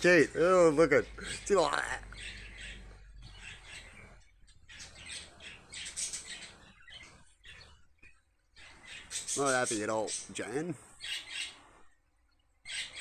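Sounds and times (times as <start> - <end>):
cockatoos squawking harshly: 0.0 - 7.7, 8.6 - 10.3, 11.0 - 11.7.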